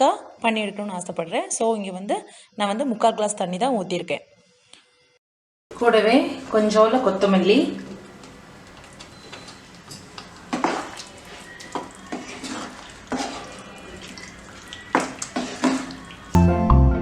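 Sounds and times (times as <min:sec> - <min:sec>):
music: 0:00.0 - 0:05.2, 0:14.5 - 0:17.0
curry sloshing: 0:06.4 - 0:16.4
metal utensil scraping cooking pot: 0:08.1 - 0:16.3.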